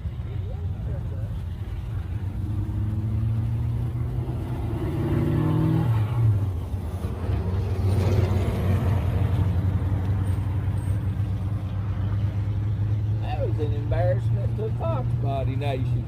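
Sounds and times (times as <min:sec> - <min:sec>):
idling engines rumble: 0:00.0 - 0:16.0
car engine revving: 0:01.0 - 0:10.5
car passing by: 0:02.2 - 0:14.4.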